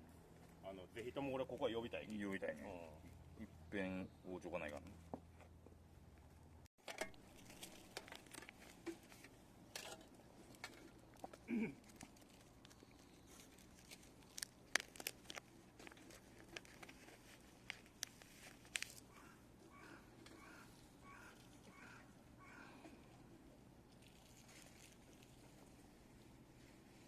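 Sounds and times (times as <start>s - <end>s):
faint clicks and rustles: 4.7s - 22.0s, 22.8s - 27.0s.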